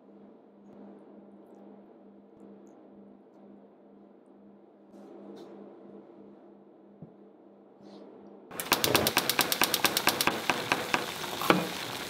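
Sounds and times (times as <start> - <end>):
food frying in hot oil: 8.5 - 12.0.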